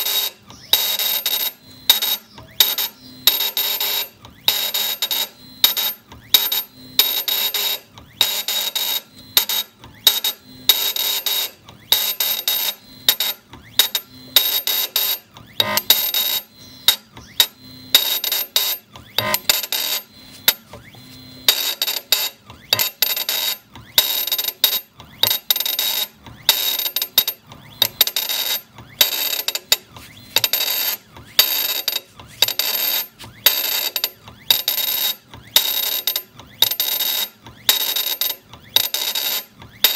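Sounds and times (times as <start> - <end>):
engraving machine whining: 15.2 - 18.1, 18.8 - 21.6.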